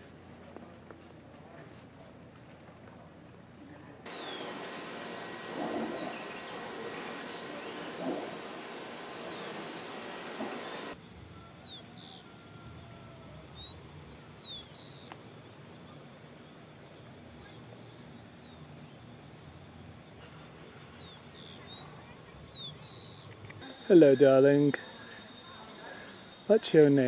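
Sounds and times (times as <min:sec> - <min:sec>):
birds chirping: 0:03.4 - 0:15.8, 0:16.5 - 0:27.0
loud hiss: 0:04.1 - 0:11.0
thin steady high tone: 0:04.1 - 0:27.0.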